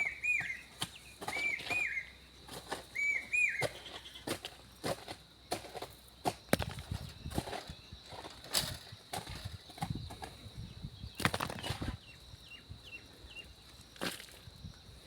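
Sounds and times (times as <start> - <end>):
bird chirping: 0.0 - 4.3, 9.5 - 13.8.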